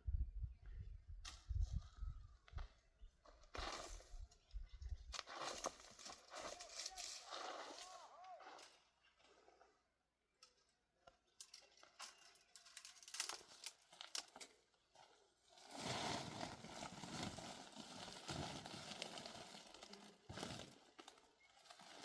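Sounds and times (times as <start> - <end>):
dry material crackling and rustling: 5.1 - 8.7, 11.4 - 22.0.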